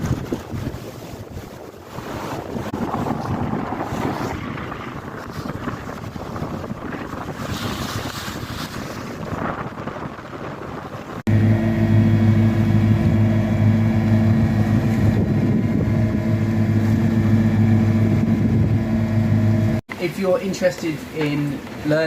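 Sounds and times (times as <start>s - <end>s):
wind and water rushing: 0.0s - 22.0s
boat engine droning: 9.7s - 19.8s.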